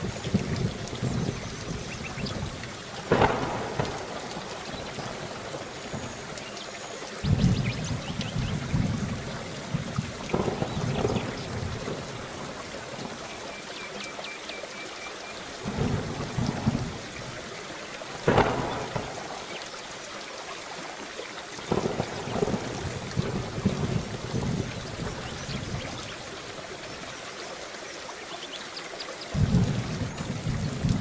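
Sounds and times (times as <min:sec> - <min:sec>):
sharp thunderclap: 0:00.0 - 0:06.1, 0:07.2 - 0:12.4, 0:15.6 - 0:17.1, 0:18.2 - 0:19.6, 0:21.7 - 0:26.0, 0:29.3 - 0:31.0
low thunder rolling: 0:00.0 - 0:06.2, 0:07.2 - 0:13.2, 0:15.6 - 0:17.4, 0:18.1 - 0:19.6, 0:21.7 - 0:26.2, 0:29.3 - 0:31.0
steady rain: 0:00.0 - 0:31.0.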